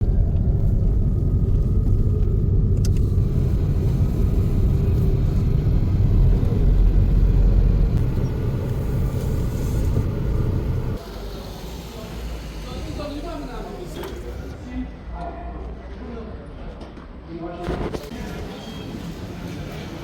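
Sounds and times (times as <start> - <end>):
moving vehicle rumble: 0.0 - 14.8.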